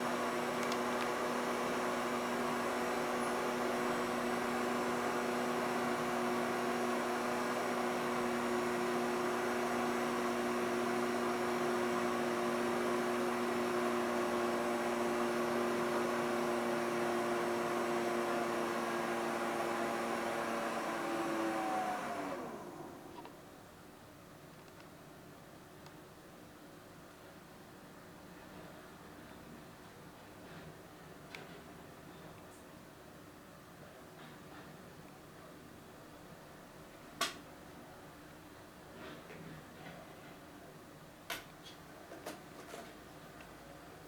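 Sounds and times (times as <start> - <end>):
robot vacuum cleaner whirring: 0.0 - 23.3.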